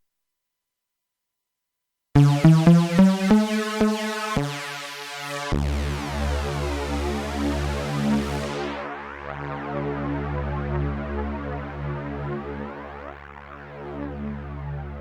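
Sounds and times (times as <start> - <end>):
deep bass note: 2.2 - 4.3
synthesizer notes and chord: 2.2 - 15.0.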